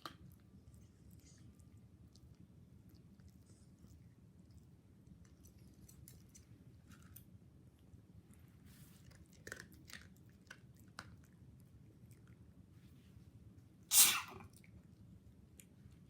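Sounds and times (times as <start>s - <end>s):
dog crunching food: 2.1s - 7.3s, 9.0s - 12.4s.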